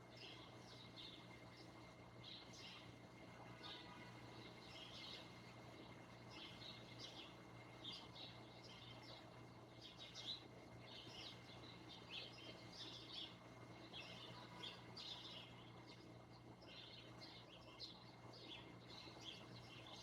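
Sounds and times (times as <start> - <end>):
small birds chirping: 4.6 - 20.0.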